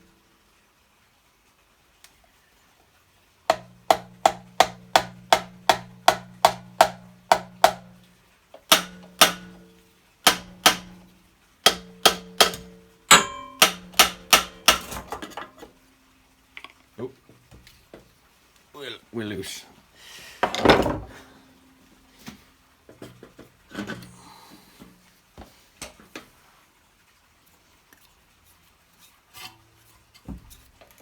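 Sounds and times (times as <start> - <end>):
hammer striking metal: 3.5 - 15.7.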